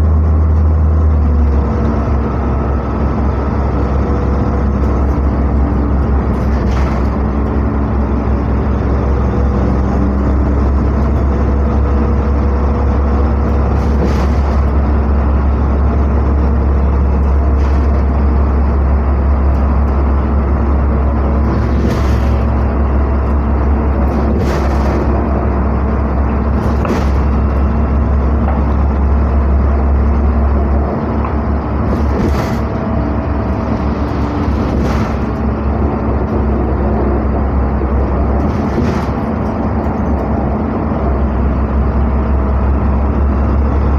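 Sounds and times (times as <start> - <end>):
bus engine drone: 0.0 - 43.9
road noise: 0.0 - 43.9
short rattles: 21.2 - 28.9, 31.8 - 36.5.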